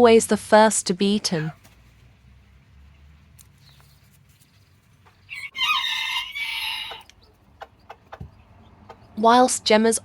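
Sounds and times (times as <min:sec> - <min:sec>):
rooster crowing: 0:05.3 - 0:07.1.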